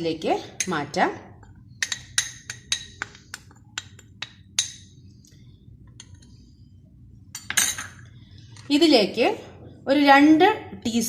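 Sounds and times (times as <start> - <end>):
spoon clinking against bowl: 1.8 - 5.0.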